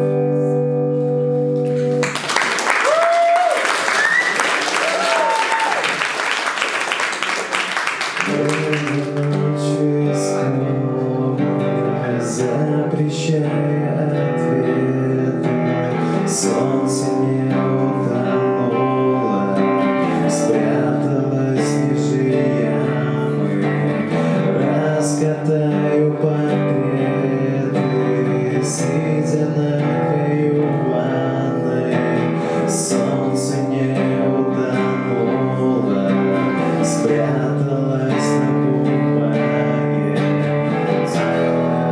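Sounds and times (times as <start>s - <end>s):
acoustic guitar strumming: 0.0s - 2.3s, 7.8s - 41.9s.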